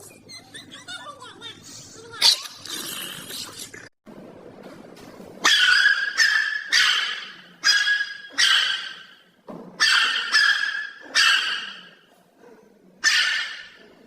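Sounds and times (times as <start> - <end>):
dog yelping: 5.4 - 9.2, 9.8 - 12.0, 13.0 - 13.8.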